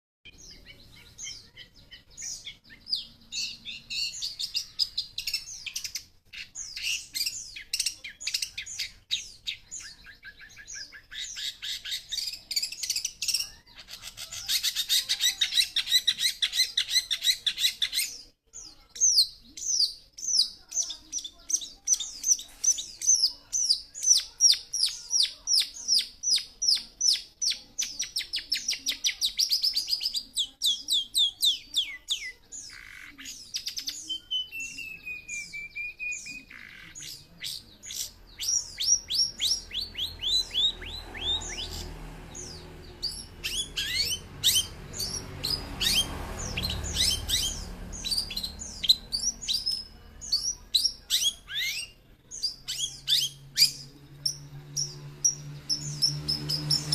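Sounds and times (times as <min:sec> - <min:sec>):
shrike singing: 0:19.1 - 0:56.9.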